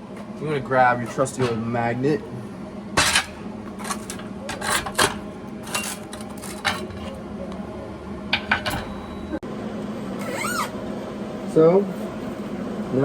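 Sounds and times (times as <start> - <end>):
steady low hum: 0.0 - 13.0
sheet metal clinking and clanking: 3.0 - 7.2, 8.3 - 9.2.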